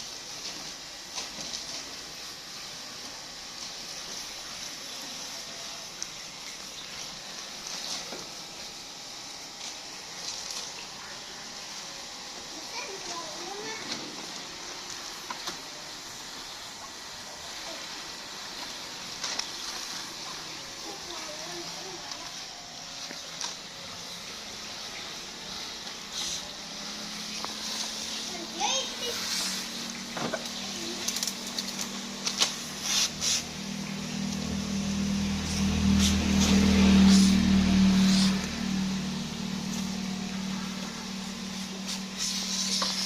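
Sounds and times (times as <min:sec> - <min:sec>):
steady motor hum: 0:00.0 - 0:43.0
water running: 0:00.0 - 0:43.0
brief hisses: 0:32.8 - 0:33.5.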